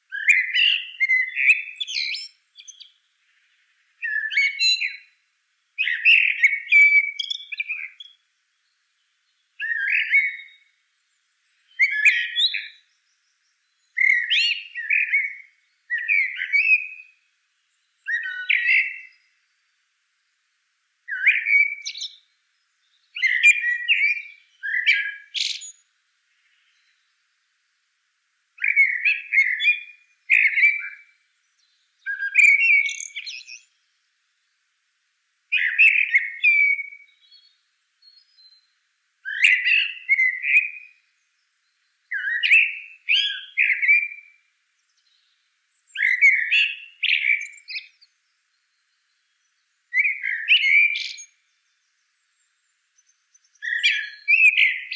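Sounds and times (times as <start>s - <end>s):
bird chirping: 0.1s - 5.2s, 5.8s - 20.4s, 21.1s - 28.0s, 28.6s - 34.7s, 35.5s - 54.9s.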